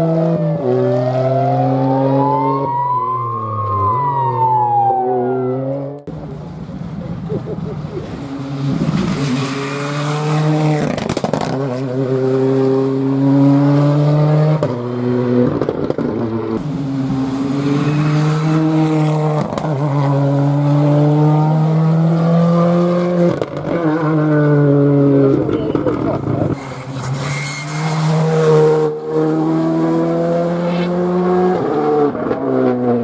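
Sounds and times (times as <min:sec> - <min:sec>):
rally car engine accelerating: 0:08.2 - 0:33.0.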